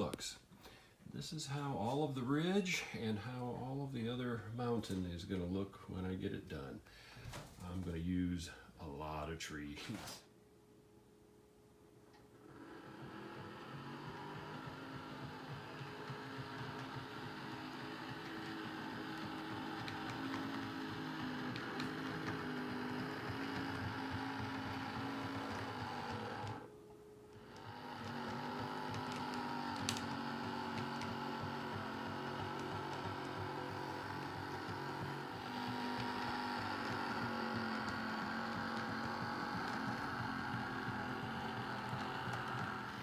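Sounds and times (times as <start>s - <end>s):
model train motor hum: 12.2s - 26.7s, 27.3s - 43.0s
wheels rumbling on track: 27.6s - 43.0s.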